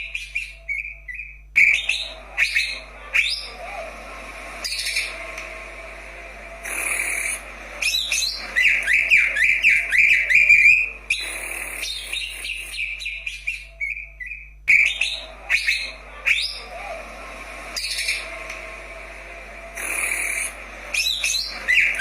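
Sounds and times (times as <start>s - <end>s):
bird singing whistled notes: 0.0s - 3.5s, 6.7s - 16.8s.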